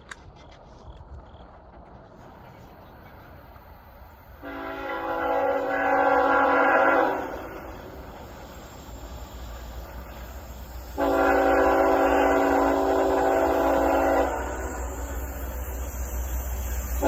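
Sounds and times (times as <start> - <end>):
train rumble: 0.0 - 17.0
locomotive air horn blast: 4.4 - 7.8, 11.0 - 15.0.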